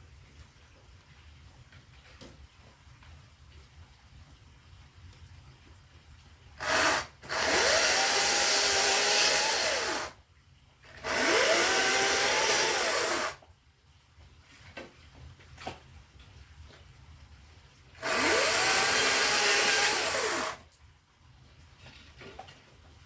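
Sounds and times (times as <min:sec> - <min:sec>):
electric saw cutting wood: 0:06.6 - 0:10.2, 0:10.9 - 0:13.4, 0:18.0 - 0:20.6.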